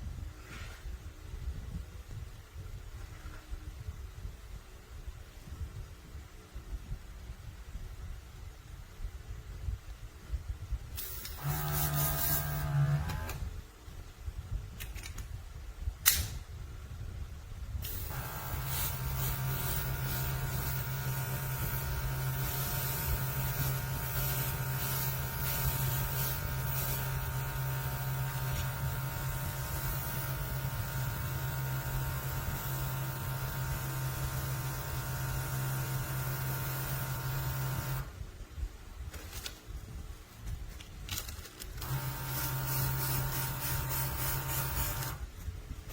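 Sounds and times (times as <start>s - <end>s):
air hissing: 11.0s - 13.4s, 17.8s - 38.1s, 41.8s - 45.9s
airbrush compressor running: 11.0s - 13.5s, 17.8s - 38.1s, 41.8s - 45.3s
sharp click: 16.0s - 16.4s.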